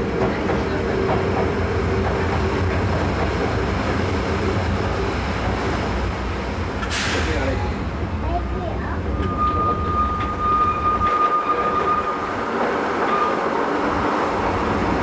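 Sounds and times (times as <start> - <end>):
passing train hum: 0.0 - 15.0
train rumbling on track: 0.0 - 15.0.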